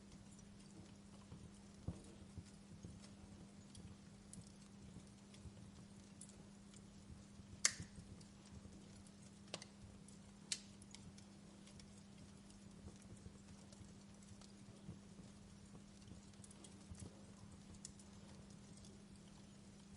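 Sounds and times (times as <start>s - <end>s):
faint low hum: 0.0s - 19.9s
fire popping: 0.0s - 19.9s
wood fire crackling: 0.0s - 19.9s.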